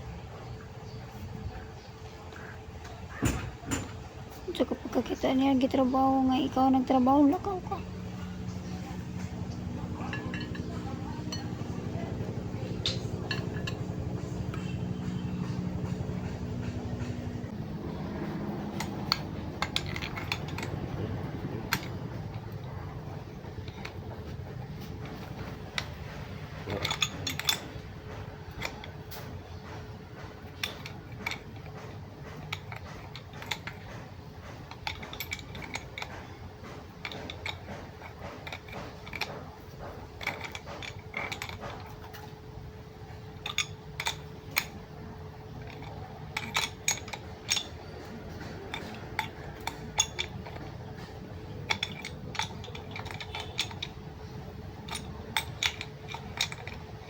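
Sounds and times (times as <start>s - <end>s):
faint steady hum: 0.0s - 57.0s
metallic clinks of hand tools: 18.6s - 29.8s, 30.5s - 42.3s, 43.3s - 44.8s, 45.6s - 57.0s.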